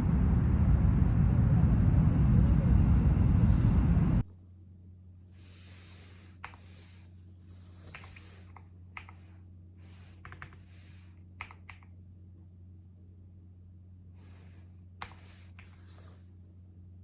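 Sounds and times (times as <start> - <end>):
low electrical hum: 0.0 - 17.0
keyboard keystrokes: 7.9 - 9.2, 10.2 - 10.7, 11.4 - 11.9
soft rustling: 14.2 - 16.6.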